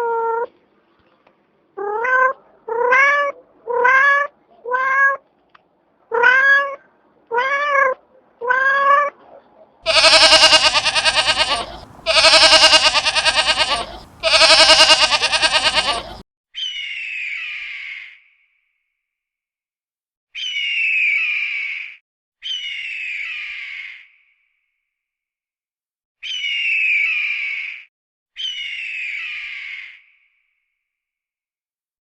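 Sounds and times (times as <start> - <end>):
cat meowing: 1.8 - 5.2, 6.1 - 9.1, 9.9 - 16.2
cat rasping squawk: 9.9 - 16.2.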